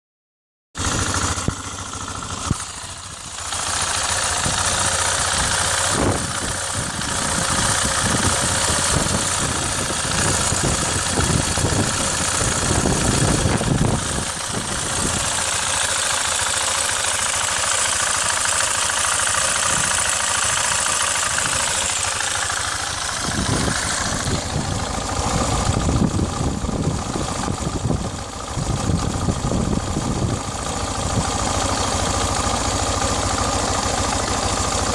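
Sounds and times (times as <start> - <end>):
motorcycle engine idling: 0.8 - 34.9.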